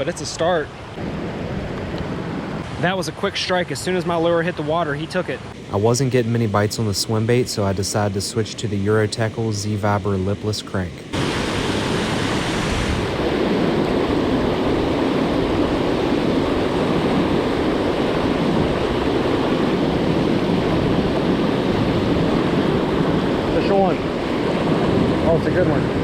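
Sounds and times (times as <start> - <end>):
river water rushing: 11.1 - 24.3.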